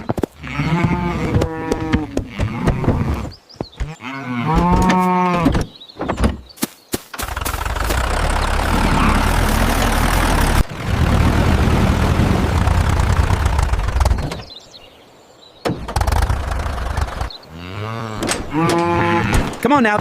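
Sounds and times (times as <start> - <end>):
engine rumbling: 7.0 - 14.6, 15.7 - 19.6.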